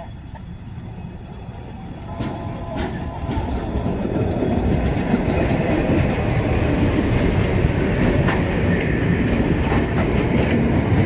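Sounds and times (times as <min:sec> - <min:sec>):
diesel train passing rumble: 0:00.0 - 0:11.0
wheels clattering on track: 0:02.0 - 0:11.0.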